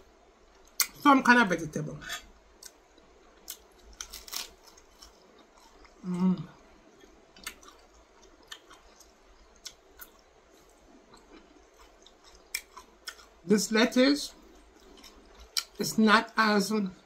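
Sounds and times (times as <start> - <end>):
person chewing crunchy lettuce: 2.6 - 13.4, 14.4 - 15.8.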